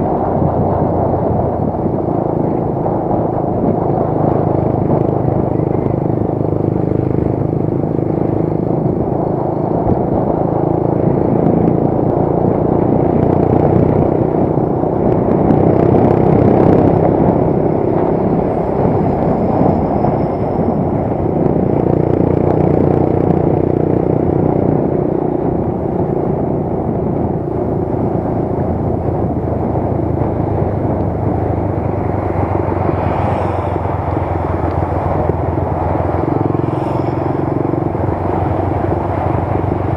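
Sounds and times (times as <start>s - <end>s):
motorcycle engine running: 0.0s - 39.9s
road noise: 0.0s - 39.9s
wind noise: 0.0s - 39.9s.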